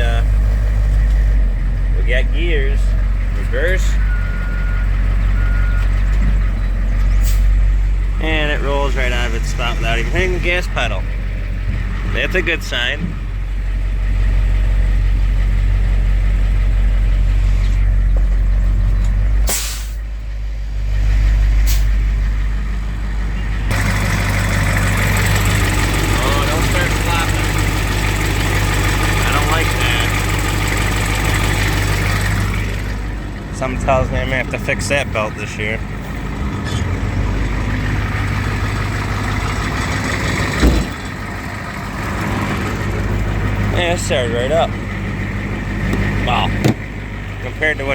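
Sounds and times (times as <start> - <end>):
truck engine idling: 0.0 - 47.9
air brake hiss: 7.2 - 7.6, 19.5 - 20.0, 21.6 - 22.0
loud thump: 40.6 - 41.0, 45.9 - 46.9.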